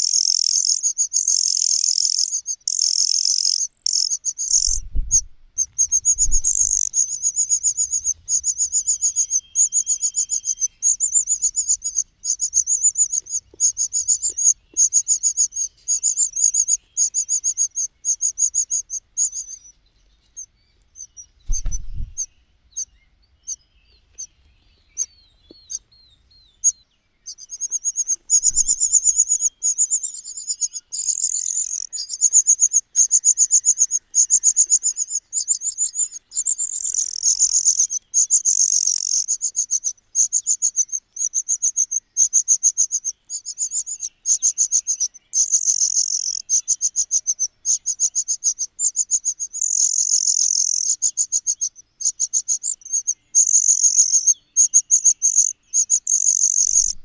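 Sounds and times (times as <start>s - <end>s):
nestlings chirping: 0.0s - 57.0s
soft thumps: 21.5s - 22.2s.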